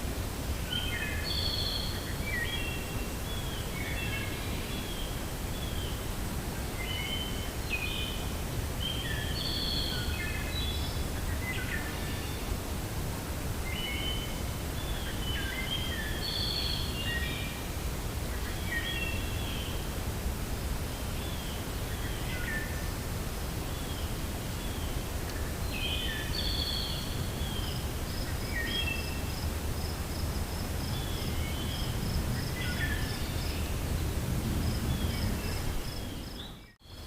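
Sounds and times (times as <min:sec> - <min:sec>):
songbirds singing whistled notes: 0:00.6 - 0:06.0, 0:06.8 - 0:12.5, 0:13.6 - 0:19.8, 0:20.9 - 0:23.0, 0:23.7 - 0:37.0
low wind rumble: 0:16.8 - 0:36.8.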